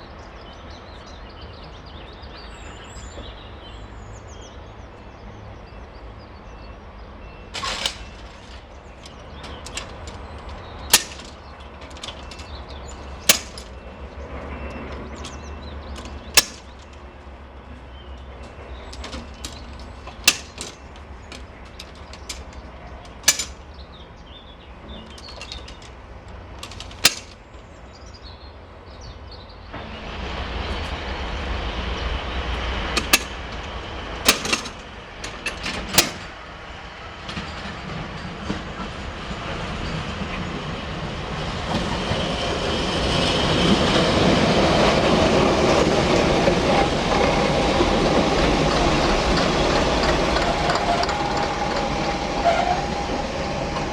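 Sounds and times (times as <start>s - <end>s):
train rumbling: 0.0s - 53.9s
sharp bangs: 10.8s - 12.5s, 13.2s - 13.9s, 16.0s - 17.0s, 19.0s - 20.9s.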